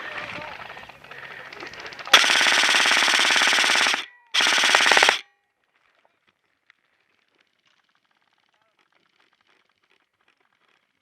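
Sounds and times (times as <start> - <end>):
airsoft gun firing full-auto: 2.1 - 5.2.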